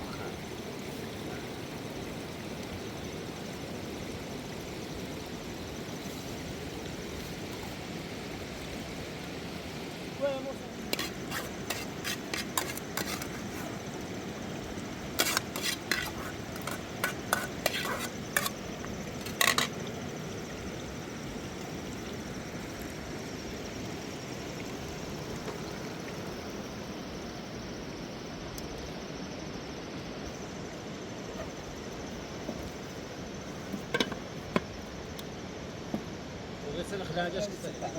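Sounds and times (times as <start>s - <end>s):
steady hiss: 0.0s - 37.9s
metal utensil clinking on pot: 19.2s - 19.8s.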